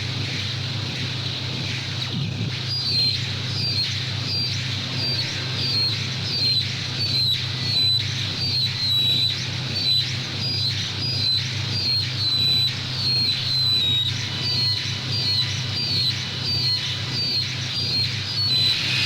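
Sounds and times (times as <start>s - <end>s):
steady low hum: 10.2s - 19.0s
electronic chirps: 12.4s - 19.0s.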